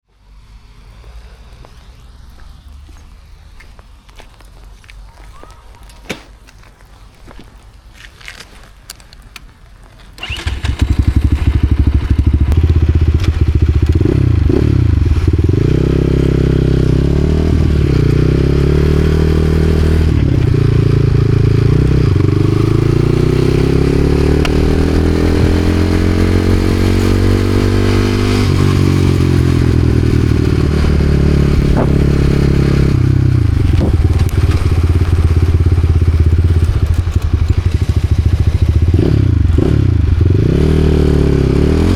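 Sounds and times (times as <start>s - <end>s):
motorcycle engine revving: 10.2s - 41.9s.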